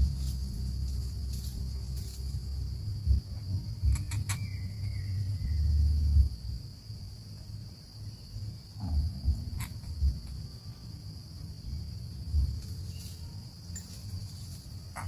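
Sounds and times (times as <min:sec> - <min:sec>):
low bumps: 0:00.0 - 0:06.7, 0:08.4 - 0:10.6, 0:11.5 - 0:13.0
crickets chirping: 0:00.0 - 0:15.0.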